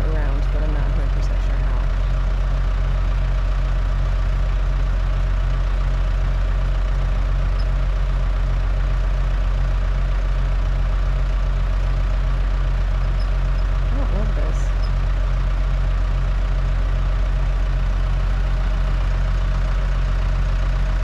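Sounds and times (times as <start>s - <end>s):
loader engine idling: 0.0s - 21.0s.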